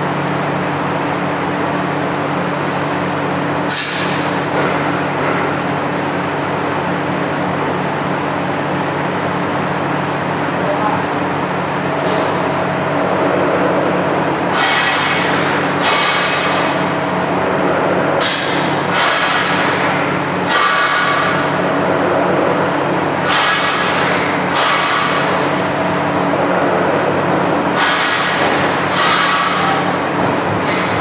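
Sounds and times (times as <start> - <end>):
machine motor hum: 9.5 - 31.0
metallic punch strokes: 18.2 - 21.6.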